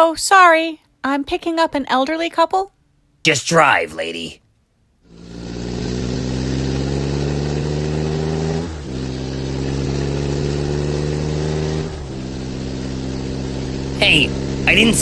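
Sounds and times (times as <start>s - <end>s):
car engine accelerating: 5.1s - 15.0s.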